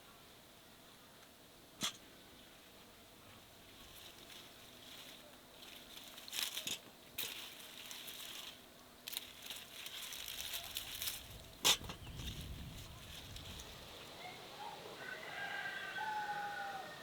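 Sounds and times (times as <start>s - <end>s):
crinkling rustling handling noise: 3.6s - 13.8s.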